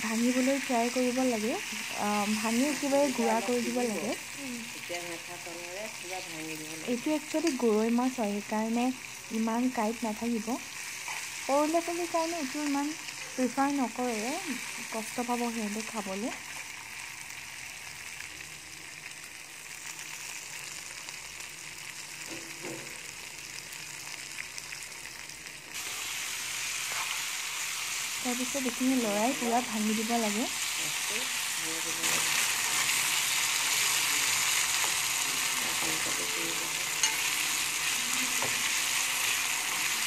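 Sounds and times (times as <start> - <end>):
oil sizzling: 0.0 - 40.0
steel spoon stirring: 33.7 - 40.0.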